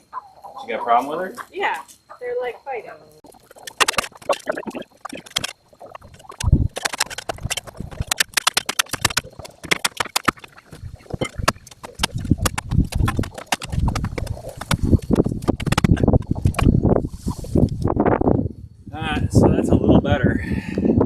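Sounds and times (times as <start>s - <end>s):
digging tool scraping dirt and stones: 3.3s - 17.9s.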